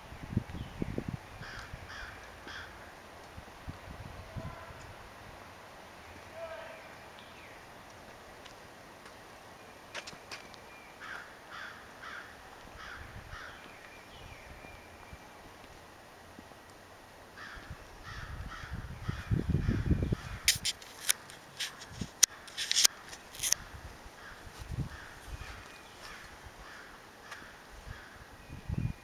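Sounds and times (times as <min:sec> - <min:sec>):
crows cawing: 0:01.4 - 0:02.9, 0:11.0 - 0:13.7, 0:17.4 - 0:20.5, 0:22.3 - 0:28.2.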